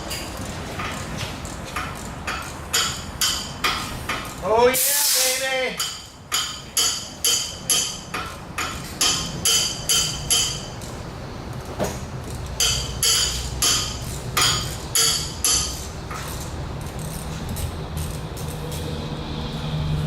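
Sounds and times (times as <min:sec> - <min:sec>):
hammer striking metal: 0:01.7 - 0:04.4, 0:05.7 - 0:10.8, 0:12.6 - 0:16.3.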